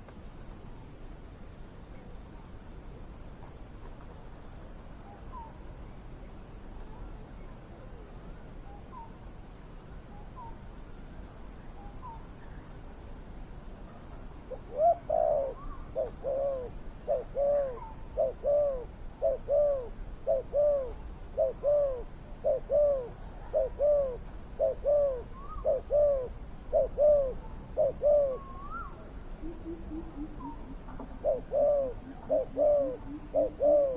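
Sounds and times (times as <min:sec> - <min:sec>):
dove cooing: 0:14.5 - 0:33.9.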